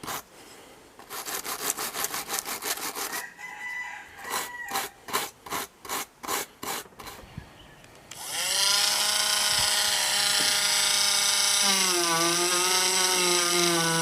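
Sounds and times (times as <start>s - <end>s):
hand rubbing on wood: 1.0s - 3.2s, 4.2s - 7.2s
small power tool motor: 8.1s - 14.0s.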